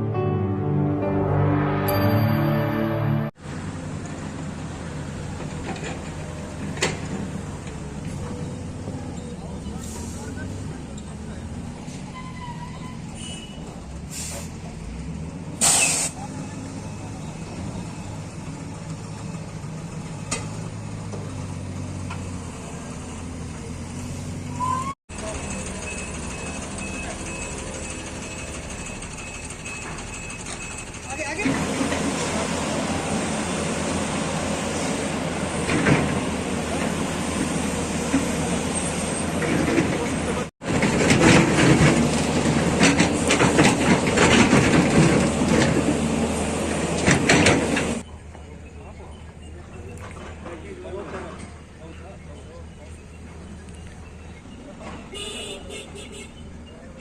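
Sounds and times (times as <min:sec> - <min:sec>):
heavy vehicles rumbling: 0:00.0 - 0:57.0
clattering and knocking: 0:39.4 - 0:46.0.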